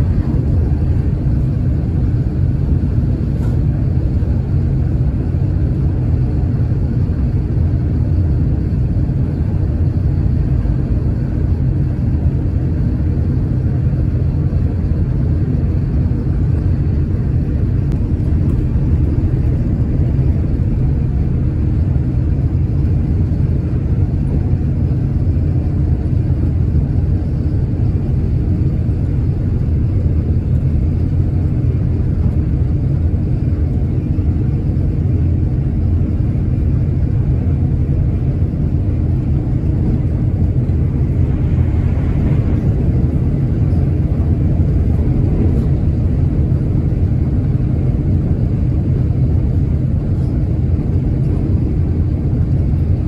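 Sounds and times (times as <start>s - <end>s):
faint steady hum: 0.0s - 53.0s
train wheels rumbling on track: 15.4s - 24.6s, 35.4s - 48.4s.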